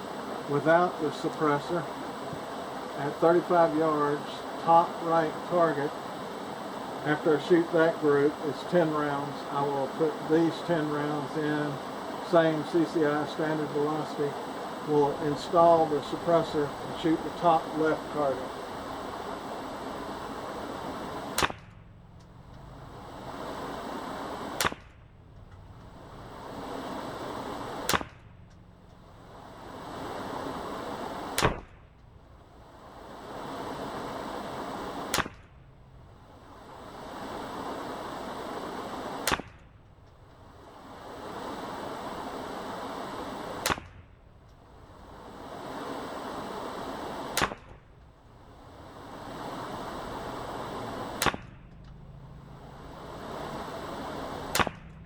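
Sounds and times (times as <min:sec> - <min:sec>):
rushing background noise: 0:00.0 - 0:55.0
steady hiss: 0:00.0 - 0:55.0
rifle shots: 0:14.9 - 0:32.4, 0:33.1 - 0:39.8, 0:43.2 - 0:44.1, 0:46.4 - 0:48.0, 0:49.6 - 0:52.4, 0:53.0 - 0:55.0.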